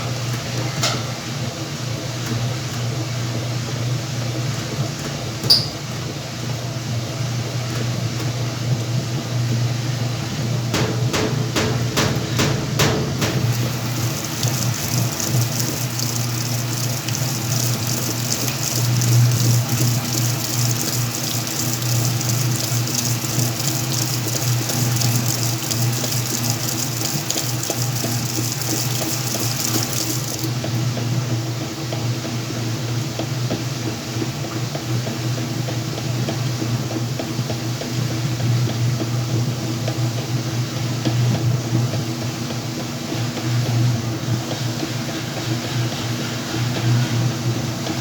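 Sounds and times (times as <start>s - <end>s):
sharp click: 5.4s - 5.8s
washing machine motor hum: 8.1s - 34.4s.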